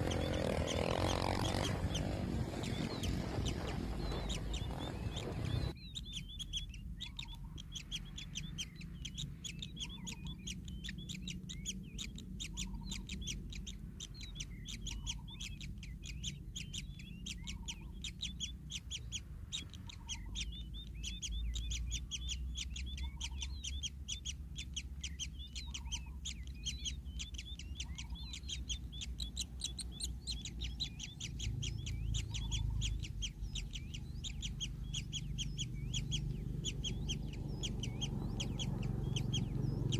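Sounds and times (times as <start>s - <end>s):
bird chirping rapidly: 0.0s - 39.9s
faint low rumble: 0.0s - 39.9s.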